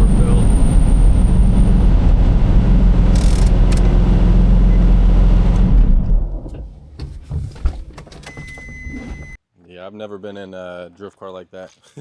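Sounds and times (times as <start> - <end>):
car engine running: 0.0 - 6.5
small clicks: 3.2 - 3.9.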